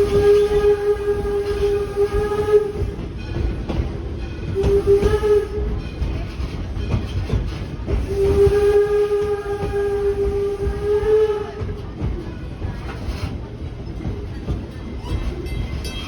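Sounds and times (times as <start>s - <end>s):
steam whistle blasts: 0.0s - 3.1s, 4.6s - 5.8s, 8.0s - 11.8s
moving train rumble and clicking: 0.0s - 16.0s.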